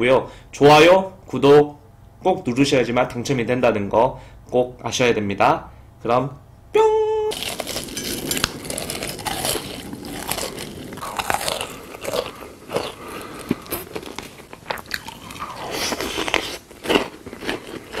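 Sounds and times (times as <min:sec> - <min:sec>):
crunchy chewing of food: 0:07.3 - 0:18.0.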